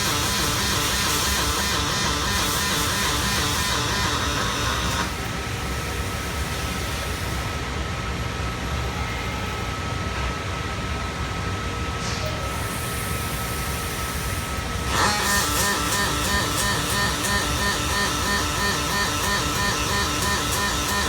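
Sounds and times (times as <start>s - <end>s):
welding machine noise: 0.0s - 7.6s, 12.5s - 21.0s.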